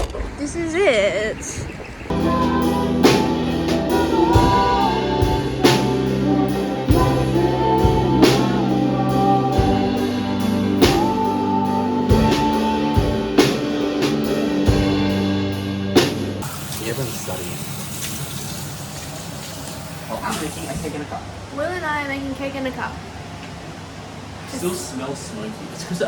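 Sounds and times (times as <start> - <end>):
person singing: 2.1 - 14.4
guitar: 2.1 - 20.4.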